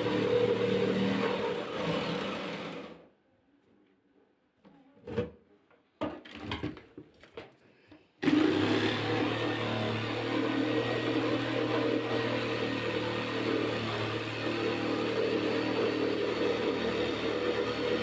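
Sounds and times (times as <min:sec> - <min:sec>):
power tool motor running: 0:08.2 - 0:18.0.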